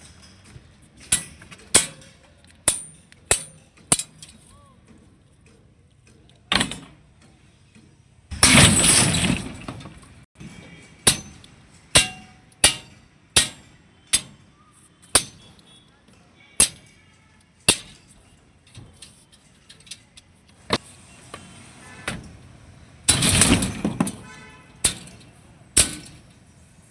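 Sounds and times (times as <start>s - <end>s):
sharp construction strikes: 8.3s - 9.8s, 11.0s - 14.5s, 23.1s - 25.2s
crashing bursts: 8.3s - 10.3s, 23.0s - 26.3s.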